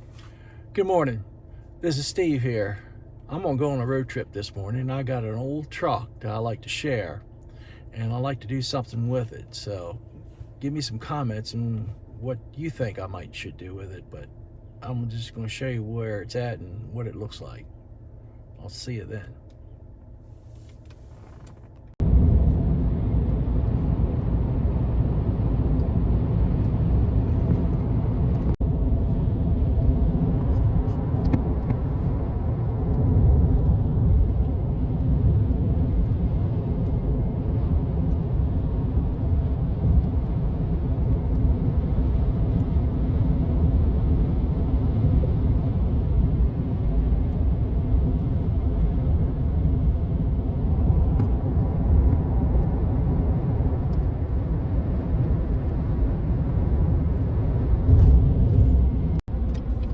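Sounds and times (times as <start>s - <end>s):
vehicle engine and road rumble: 0.0s - 59.9s.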